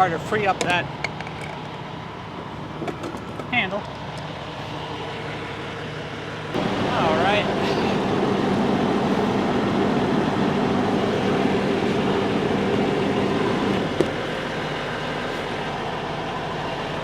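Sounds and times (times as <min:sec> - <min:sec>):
diesel truck engine idling: 0:00.0 - 0:17.0
engine hum: 0:00.0 - 0:17.0.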